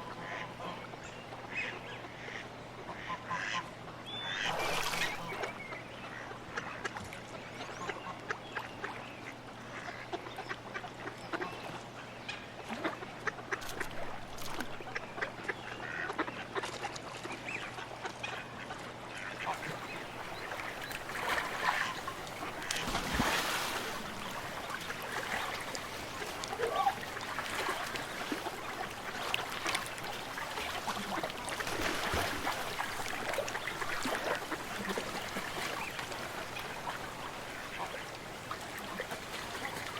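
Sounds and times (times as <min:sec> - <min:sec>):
ducks quacking: 0:01.5 - 0:03.6, 0:19.2 - 0:39.9
geese honking: 0:19.4 - 0:31.4.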